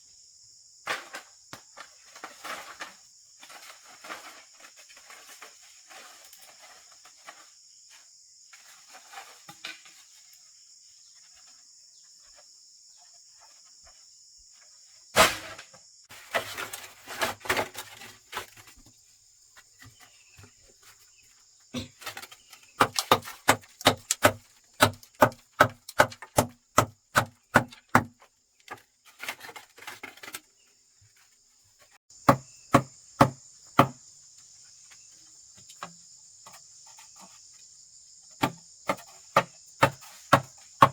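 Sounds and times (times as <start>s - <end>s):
insects buzzing: 0.0s - 40.9s
tool striking wood: 22.8s - 28.2s, 32.2s - 34.0s, 38.4s - 40.9s.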